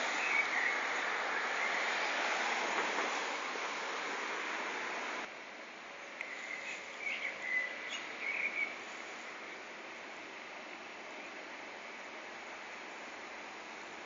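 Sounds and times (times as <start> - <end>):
faint outdoor hiss: 0.0 - 14.0
bird chirping: 6.2 - 8.8.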